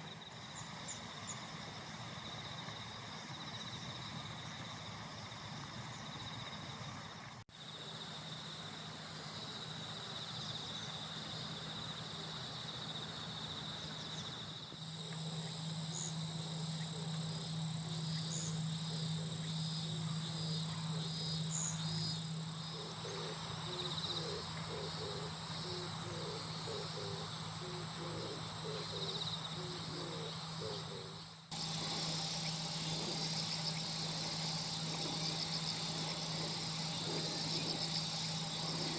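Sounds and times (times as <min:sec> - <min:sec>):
crickets and insects trilling: 0:00.0 - 0:38.9
low steady hum: 0:00.0 - 0:38.9.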